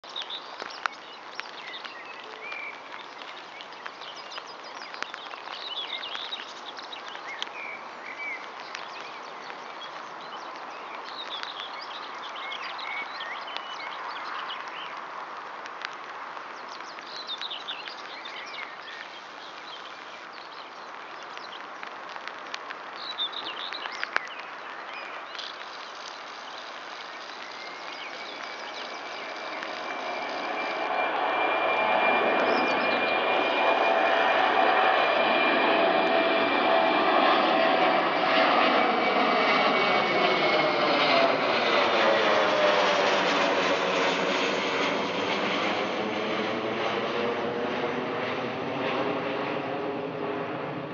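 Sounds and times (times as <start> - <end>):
small birds chirping: 0.0 - 15.0, 15.8 - 42.0
steady outdoor hiss: 0.0 - 31.2
distant jet aircraft: 25.4 - 50.9.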